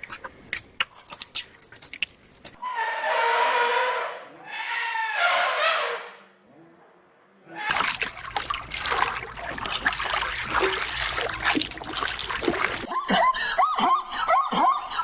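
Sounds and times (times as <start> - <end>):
water splashing and sloshing: 7.7 - 13.5.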